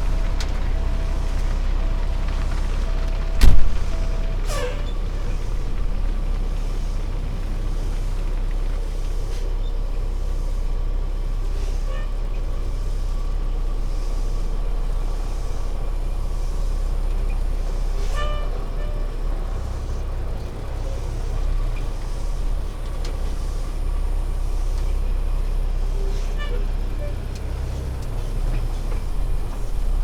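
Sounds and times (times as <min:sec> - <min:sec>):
wind noise: 0:00.0 - 0:07.3
road noise: 0:00.0 - 0:30.0
truck engine drone: 0:00.0 - 0:30.0.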